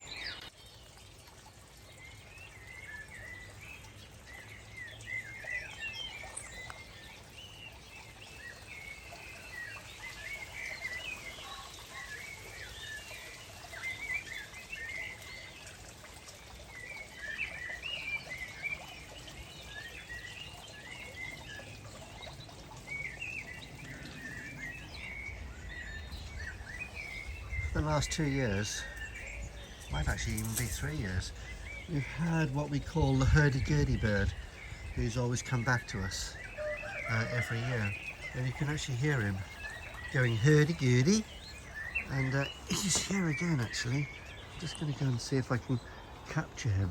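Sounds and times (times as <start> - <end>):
birds chirping and warbling: 0.0 - 46.9.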